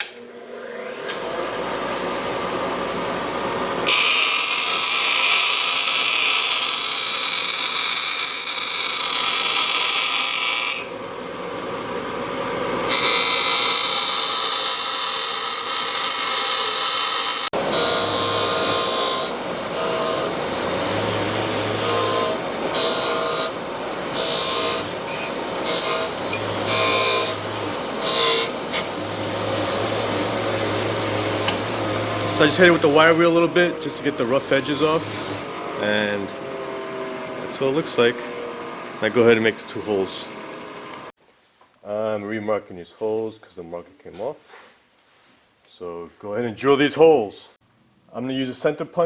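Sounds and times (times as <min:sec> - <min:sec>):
wire wheel grinder on steel: 0:00.7 - 0:10.9, 0:12.8 - 0:41.1.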